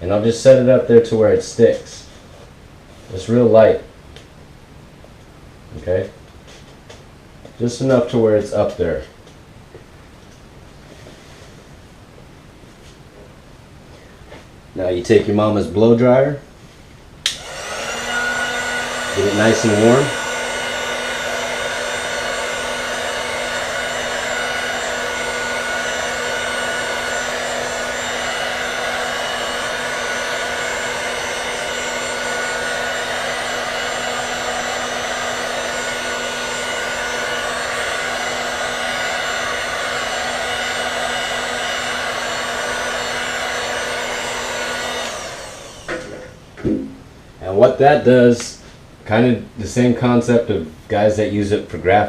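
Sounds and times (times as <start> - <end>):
hair dryer running: 17.3 - 46.8.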